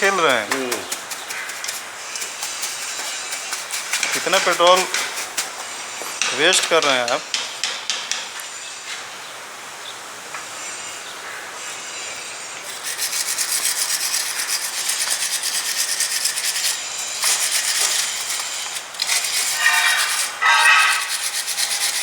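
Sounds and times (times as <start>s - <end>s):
scrubbing on an engine part: 0.0s - 5.8s, 12.6s - 22.0s.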